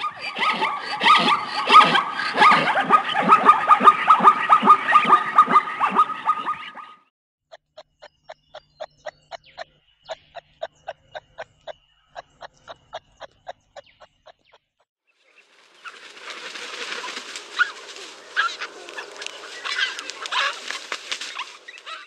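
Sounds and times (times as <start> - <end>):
bird sharp clicking notes: 7.5 - 14.8
birds chirping chatter: 8.0 - 14.6, 15.2 - 22.0.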